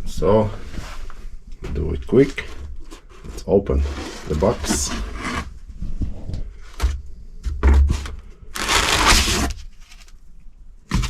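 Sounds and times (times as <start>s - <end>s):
cardboard box tearing: 7.9s - 10.1s.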